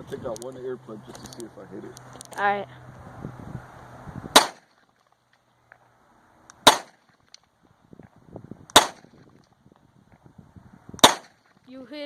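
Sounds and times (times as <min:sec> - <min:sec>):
gunshots with echo: 0:04.4 - 0:04.6, 0:06.6 - 0:07.0, 0:08.8 - 0:09.0, 0:11.0 - 0:11.3.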